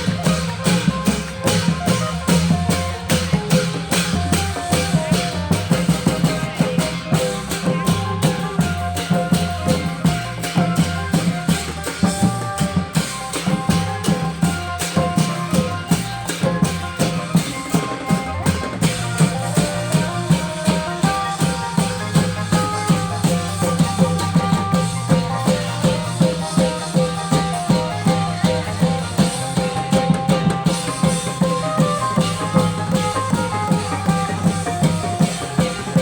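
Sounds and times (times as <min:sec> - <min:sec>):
drums steady beat: 0:00.0 - 0:36.0.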